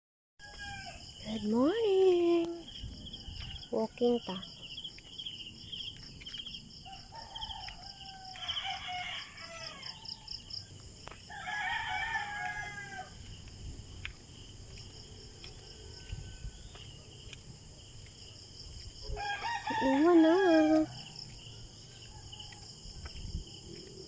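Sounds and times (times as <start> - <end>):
rooster crowing: 0.4 - 1.2, 6.8 - 13.3, 19.1 - 22.7
crickets trilling: 0.4 - 24.0.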